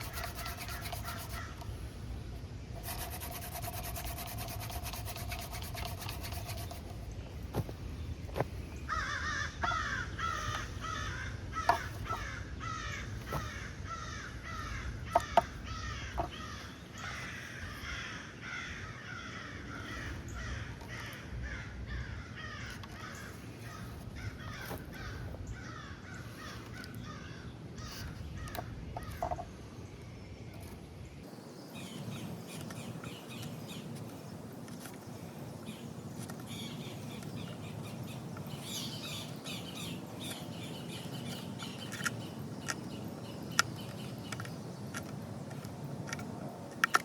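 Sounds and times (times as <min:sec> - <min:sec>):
crows cawing: 0:08.9 - 0:29.2.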